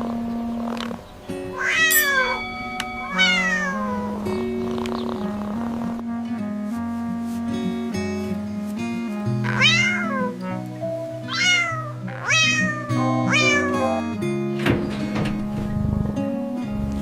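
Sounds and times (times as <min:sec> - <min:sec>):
light background music: 0:00.0 - 0:17.0
cat meowing: 0:01.5 - 0:02.4, 0:03.0 - 0:04.2, 0:09.4 - 0:10.4, 0:11.3 - 0:14.0.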